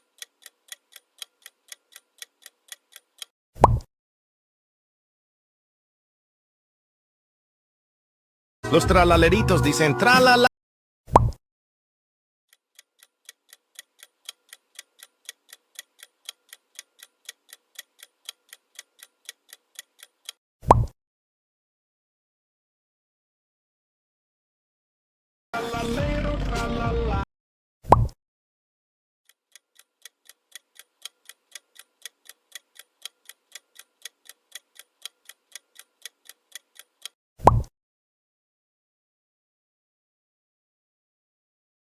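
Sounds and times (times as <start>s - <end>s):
clock-like timer ticks: 0.0s - 3.3s, 12.5s - 20.4s, 29.3s - 37.2s.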